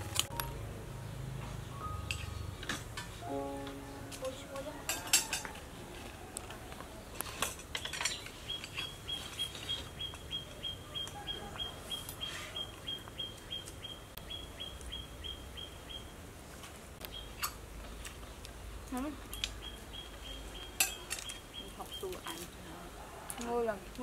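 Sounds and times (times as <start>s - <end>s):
spoons clicking on plates: 4.6s - 5.6s, 20.7s - 21.4s.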